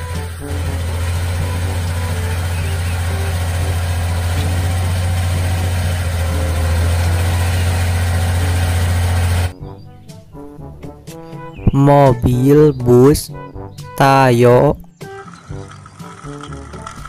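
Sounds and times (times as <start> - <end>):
diesel truck engine humming: 0.0 - 9.5, 14.2 - 17.0
hydraulic ram raising tipper bed: 0.0 - 9.5.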